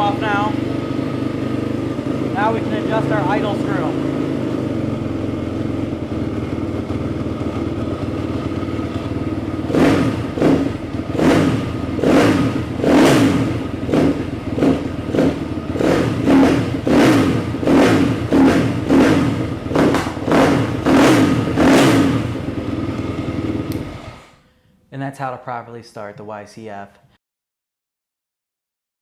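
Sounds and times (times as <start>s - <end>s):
motorbike engine idling and revving: 0.0s - 24.4s.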